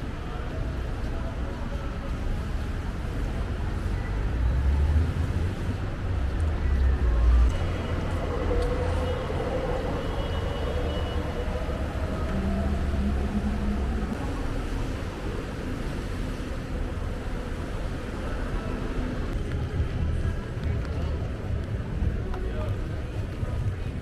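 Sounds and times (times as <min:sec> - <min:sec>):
traffic on wet street: 0:00.0 - 0:24.0
vehicle humming tone: 0:04.4 - 0:16.2.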